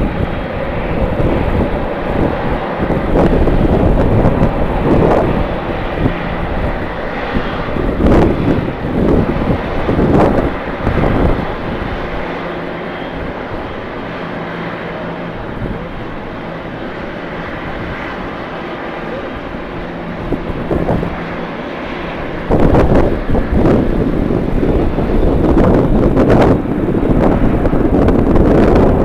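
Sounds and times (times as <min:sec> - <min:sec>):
jet engines running: 0:00.0 - 0:29.0
wind buffeting microphone: 0:00.0 - 0:29.0.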